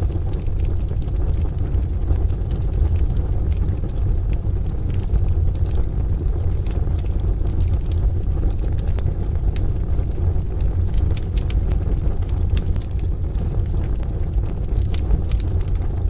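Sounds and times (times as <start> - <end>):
deep rumble: 0.0 - 16.0
wood fire crackling: 0.0 - 16.0.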